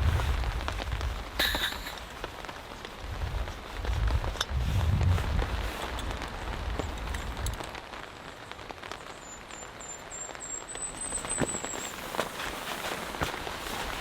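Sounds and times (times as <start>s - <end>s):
low rumble: 0.0s - 1.2s, 3.0s - 7.6s
heavy raindrops hitting: 0.0s - 14.0s
rain falling: 0.0s - 14.0s.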